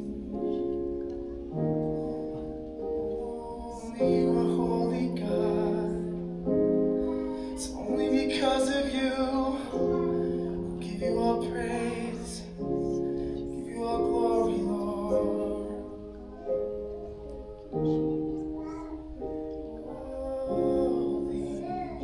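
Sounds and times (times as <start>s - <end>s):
person singing: 0.0s - 22.0s
piano chords: 0.0s - 22.0s.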